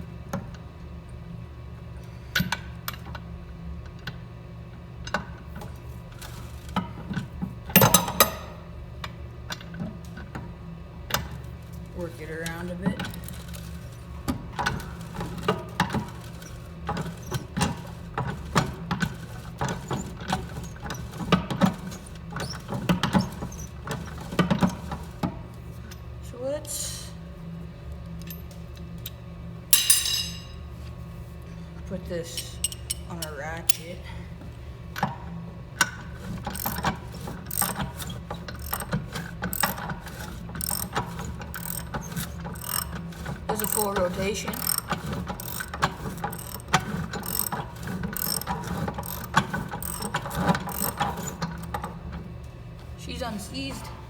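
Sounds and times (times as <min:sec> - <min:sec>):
engine metallic clicks and squeaks: 0:16.1 - 0:18.6, 0:19.5 - 0:24.9, 0:36.3 - 0:52.0.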